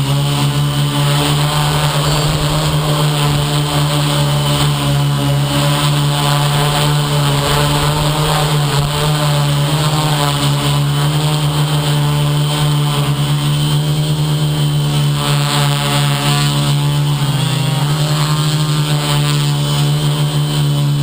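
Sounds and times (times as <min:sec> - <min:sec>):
model aircraft motors droning: 0:00.0 - 0:21.0.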